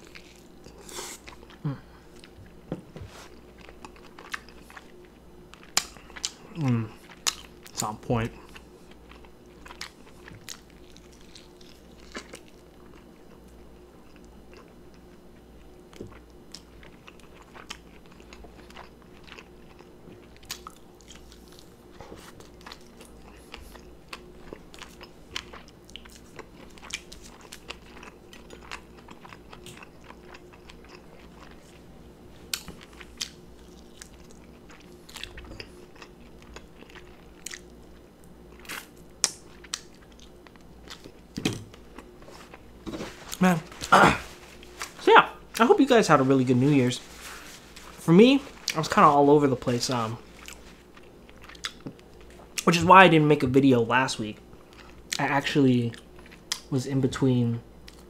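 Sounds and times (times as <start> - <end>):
faint hum: 0.0 - 58.0
biting and chewing chicken: 3.3 - 45.0, 49.6 - 52.7.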